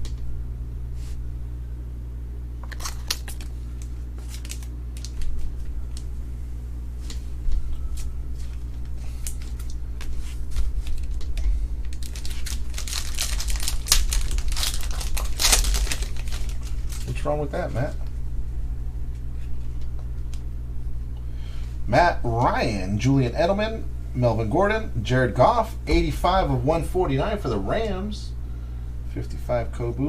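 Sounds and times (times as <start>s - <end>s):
low electrical hum: 0.0s - 30.0s
plastic wrapper crinkling and tearing: 2.6s - 6.1s, 8.5s - 17.3s.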